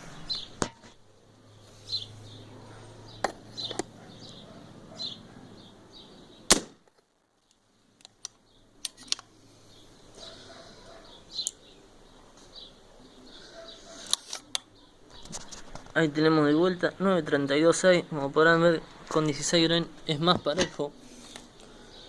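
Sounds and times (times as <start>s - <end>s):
air rifle shot: 6.5s - 6.8s.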